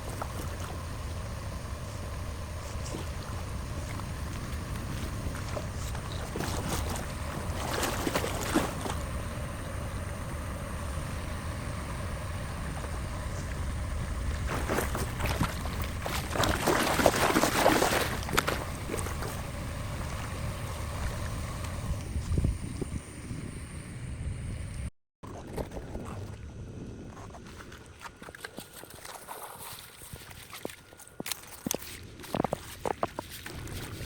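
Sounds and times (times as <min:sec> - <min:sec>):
splashing and crackling: 0:00.0 - 0:09.4, 0:12.6 - 0:21.8, 0:27.4 - 0:34.0
wind rumbling on microphone: 0:00.0 - 0:34.0.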